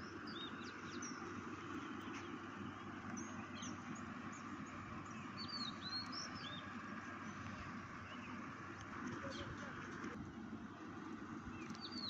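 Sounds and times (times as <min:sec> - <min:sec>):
outdoor background hiss: 0:00.0 - 0:12.0
small birds chirping: 0:00.0 - 0:12.0.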